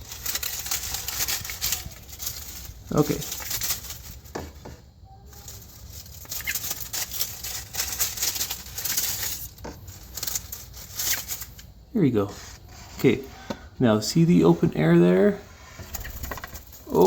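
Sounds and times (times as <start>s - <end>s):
bird wings fluttering and scratching: 0.0s - 11.7s, 15.9s - 17.0s.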